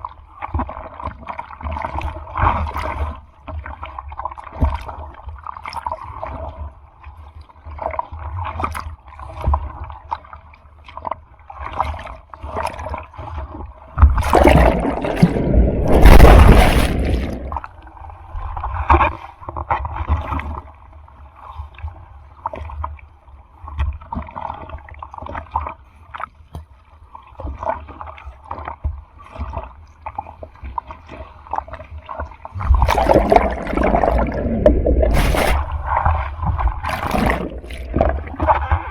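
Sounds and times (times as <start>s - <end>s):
sea water sloshing and splashing: 0.0s - 38.9s
rushing surge of breaking water: 14.1s - 17.7s, 32.7s - 38.9s.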